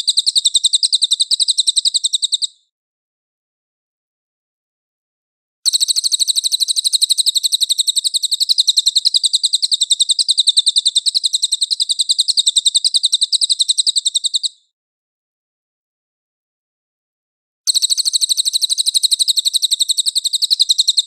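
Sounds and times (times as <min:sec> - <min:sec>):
songbird rapid harsh notes: 0:17.7 - 0:21.0.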